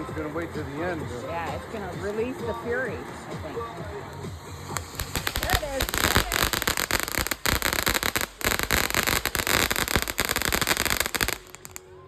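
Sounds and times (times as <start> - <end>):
firework hiss: 0.2 - 12.0
firework crackling pops: 4.0 - 12.0.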